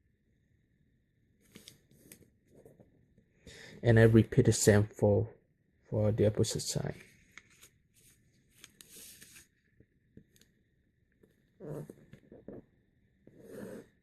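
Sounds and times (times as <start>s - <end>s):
paper rustling and creasing: 7.5s - 9.6s.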